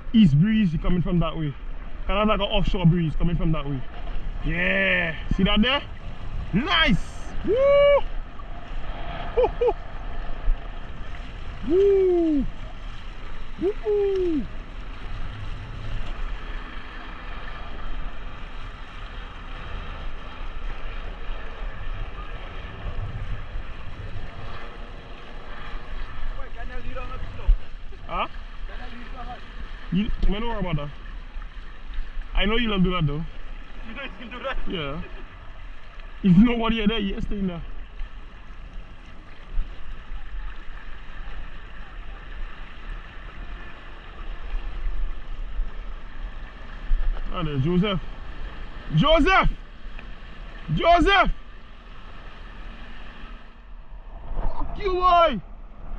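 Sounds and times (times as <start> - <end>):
water rushing along hulls: 0.0 - 55.9
wind buffeting microphone: 1.8 - 28.6.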